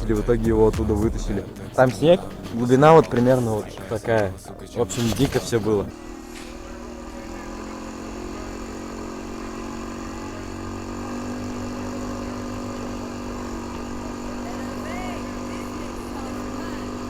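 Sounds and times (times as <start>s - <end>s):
quad bike engine idling: 5.9s - 17.0s.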